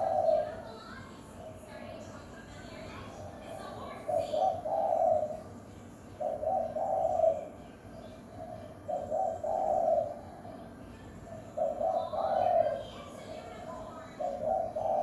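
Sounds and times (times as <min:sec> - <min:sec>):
dove cooing: 0:00.0 - 0:00.6, 0:04.1 - 0:05.4, 0:06.2 - 0:07.5, 0:08.4 - 0:10.3, 0:11.6 - 0:12.9, 0:14.2 - 0:15.0.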